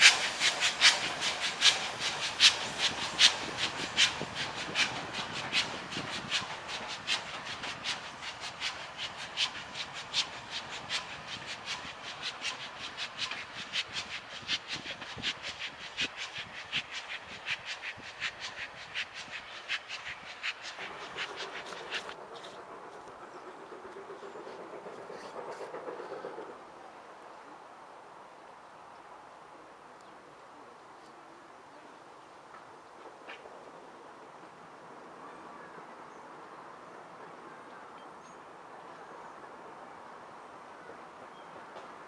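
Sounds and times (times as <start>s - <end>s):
train wheels clicking over rail joints: 0.0s - 26.7s.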